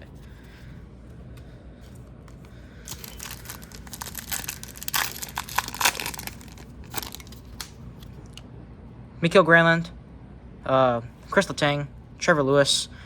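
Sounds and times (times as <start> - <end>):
wrapper crinkling as torn open: 2.8 - 7.8.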